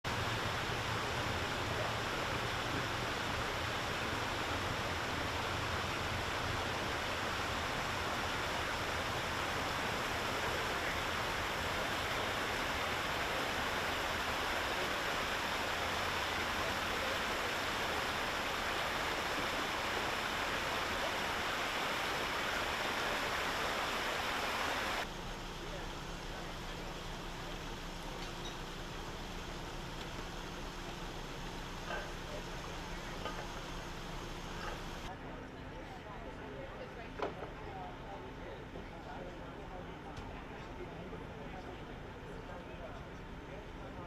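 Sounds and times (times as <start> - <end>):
water rushing from hydrant: 0.1 - 35.1.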